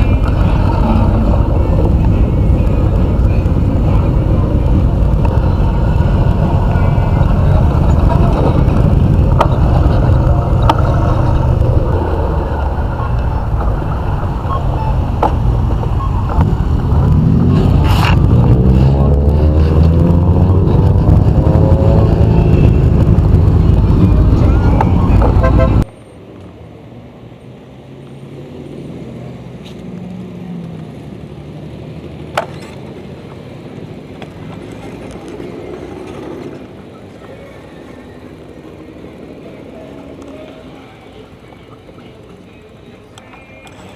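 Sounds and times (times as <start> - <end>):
motorcycle engine rumbling: 0.0 - 26.1.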